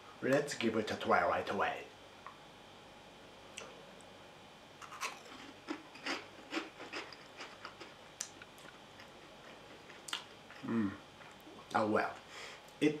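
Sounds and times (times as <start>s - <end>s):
crunchy snack being chewed: 4.8s - 11.4s.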